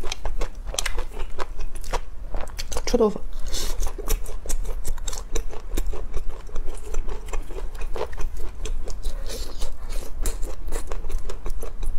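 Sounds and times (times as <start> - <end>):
chewing and biting meat: 0.0 - 11.9.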